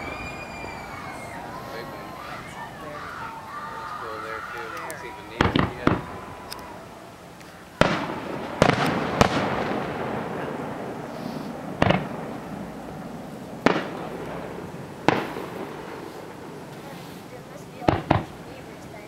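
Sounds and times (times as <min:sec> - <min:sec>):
firework shells bursting: 0:00.0 - 0:19.0.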